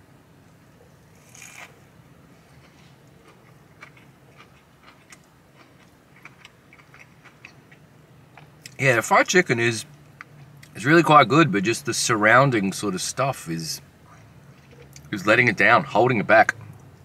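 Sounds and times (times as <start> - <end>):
person chewing food: 2.4 - 8.8.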